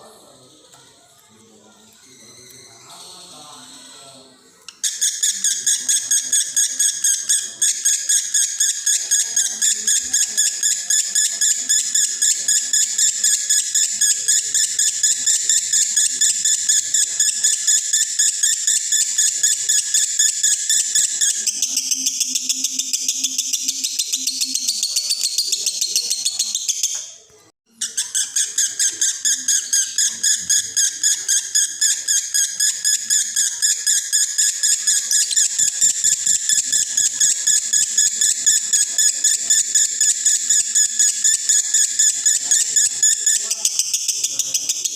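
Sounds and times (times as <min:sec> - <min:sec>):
lovebird chattering song: 0:04.7 - 0:27.2, 0:27.8 - 0:44.9.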